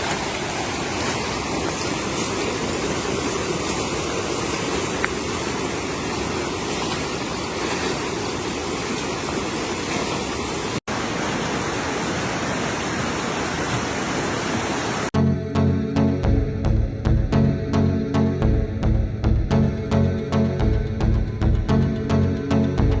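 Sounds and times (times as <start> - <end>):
floodwater rushing: 0.0 - 15.1.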